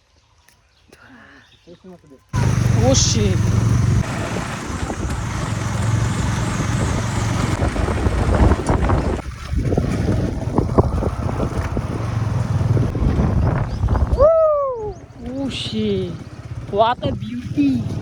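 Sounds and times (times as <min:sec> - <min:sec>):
engine running steadily: 0:02.4 - 0:18.0
wind buffeting microphone: 0:02.4 - 0:18.0.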